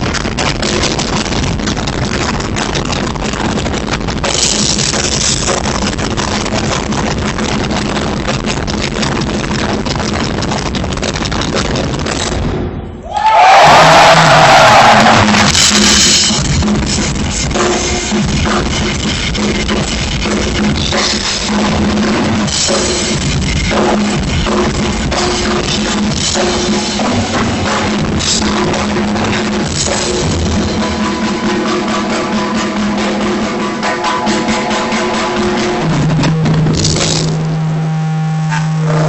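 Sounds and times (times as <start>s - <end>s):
rock drumming on drum kit: 0.0s - 12.7s, 13.3s - 39.0s
sustained bass notes: 13.6s - 39.0s.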